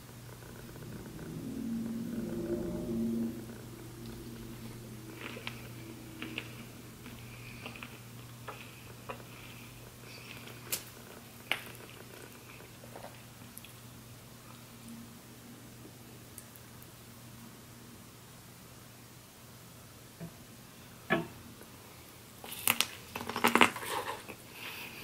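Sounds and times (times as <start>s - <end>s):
steady low hum: 0.0s - 18.4s
chewing crab and shrimp: 5.0s - 14.7s, 22.4s - 24.9s.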